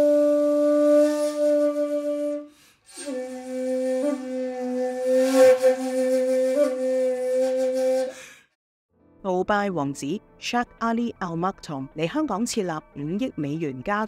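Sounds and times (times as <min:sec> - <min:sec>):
flute-like wind instrument music: 0:00.0 - 0:08.3.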